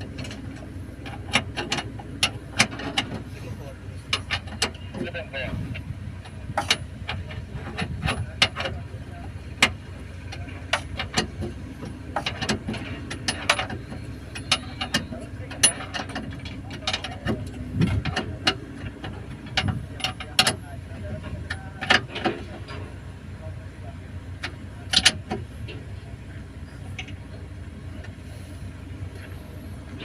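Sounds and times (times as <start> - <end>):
low background hum: 0.0 - 30.0
clinks of hand tools on metal: 9.6 - 20.6.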